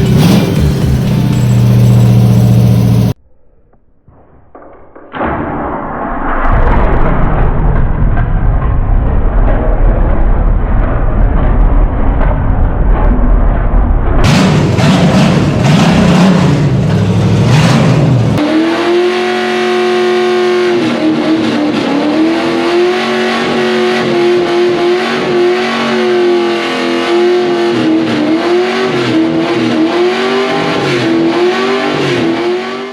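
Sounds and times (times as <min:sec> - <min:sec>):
engine at high revs: 0:00.0 - 0:03.2, 0:14.2 - 0:32.9
deeper louder sound: 0:00.0 - 0:19.2.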